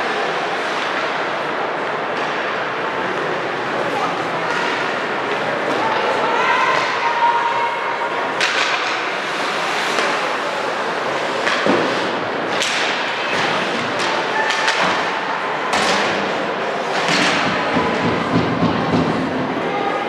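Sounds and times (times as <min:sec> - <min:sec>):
arena noise: 0:00.0 - 0:20.0.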